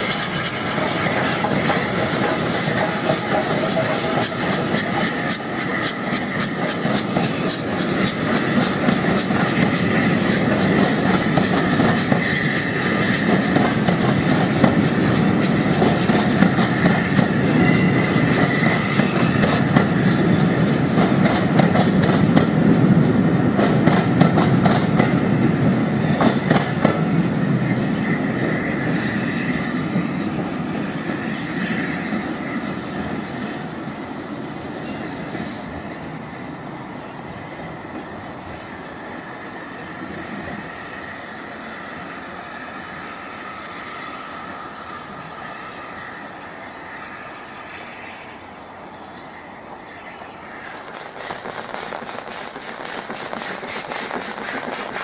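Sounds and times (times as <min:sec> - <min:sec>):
train wheels clicking over joints: 0:00.0 - 0:41.2, 0:50.5 - 0:55.0
wheel squeal: 0:25.5 - 0:26.4.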